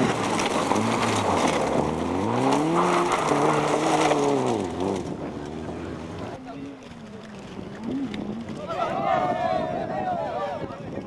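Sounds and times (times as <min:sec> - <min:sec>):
car engine accelerating hard: 0:00.0 - 0:06.4.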